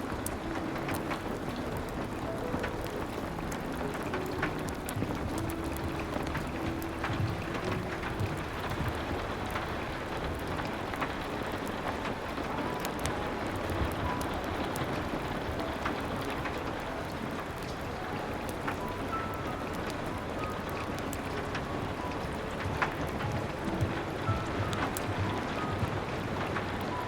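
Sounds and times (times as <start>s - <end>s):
steady rain falling: 0.0s - 27.0s
wood fire crackling: 0.0s - 27.0s.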